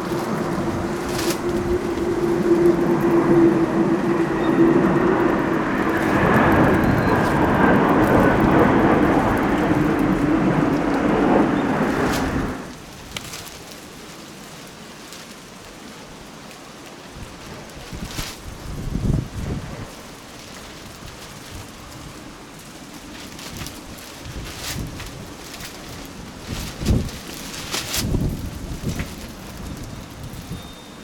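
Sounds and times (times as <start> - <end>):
jet aircraft flying over: 0.0 - 12.8.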